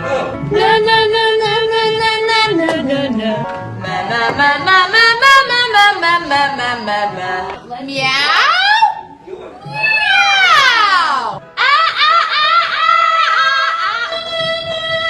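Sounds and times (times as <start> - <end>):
person singing: 0.0 - 7.6.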